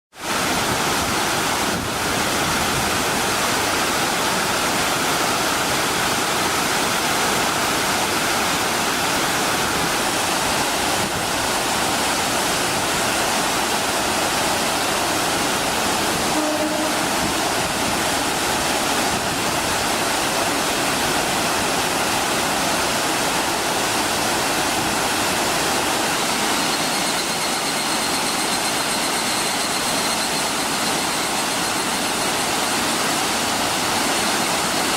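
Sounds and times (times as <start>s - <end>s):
waterfall rushing: 0.2s - 34.9s
faint high whine: 6.8s - 21.0s, 25.8s - 34.9s.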